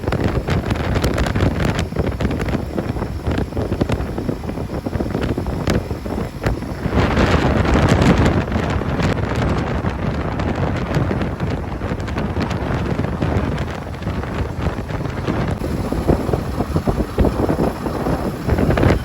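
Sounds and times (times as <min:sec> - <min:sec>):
wind buffeting microphone: 0:00.0 - 0:19.0
motorcycle engine running: 0:11.1 - 0:19.0.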